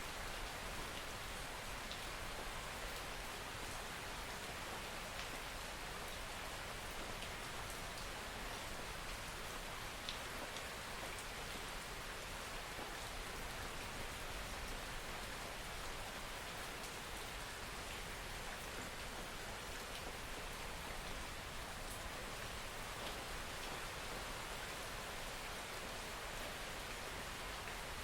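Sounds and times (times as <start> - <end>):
soft rain falling: 0.0 - 28.0
faint raindrop ticks: 5.1 - 11.6, 21.8 - 24.3.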